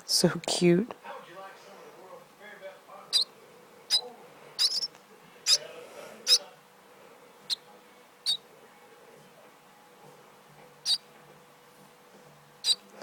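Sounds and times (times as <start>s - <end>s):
baby bird chirping: 3.1s - 3.3s, 3.9s - 6.5s, 8.2s - 8.5s, 10.8s - 11.1s, 12.6s - 12.9s.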